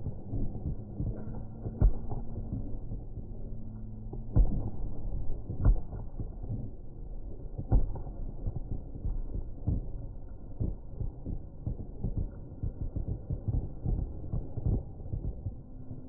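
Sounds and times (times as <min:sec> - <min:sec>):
continuous rumble: 0:00.0 - 0:16.0
fireworks booming: 0:00.0 - 0:16.0.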